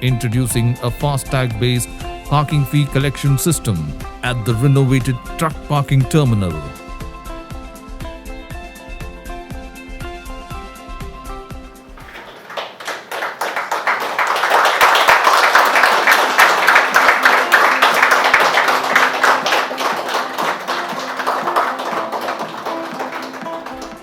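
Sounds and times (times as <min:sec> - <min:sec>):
crowd applauding: 0:00.0 - 0:06.8, 0:11.8 - 0:24.0
faint background music: 0:00.0 - 0:12.2.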